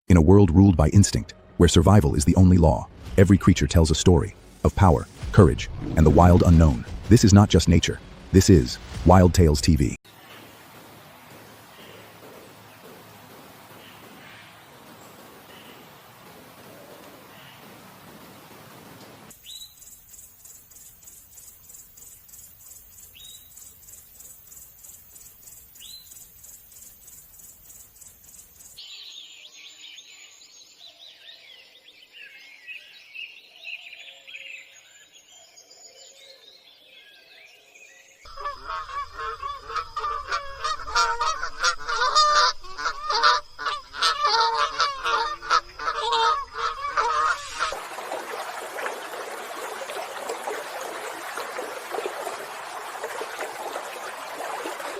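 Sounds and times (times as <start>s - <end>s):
flowing water: 2.4s - 19.4s, 44.3s - 54.9s
bird song: 19.3s - 47.7s
insect chirring: 19.6s - 28.8s
geese honking: 38.3s - 54.9s.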